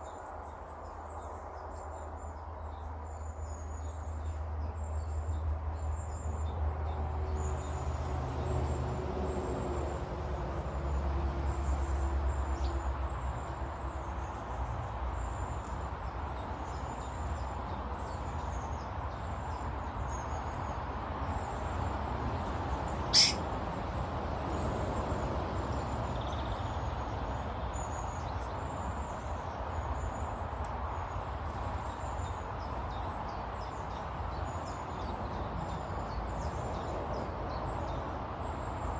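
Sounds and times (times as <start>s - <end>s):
sharp bird call: 23.0s - 23.4s
high thin bird chirps: 23.0s - 23.5s.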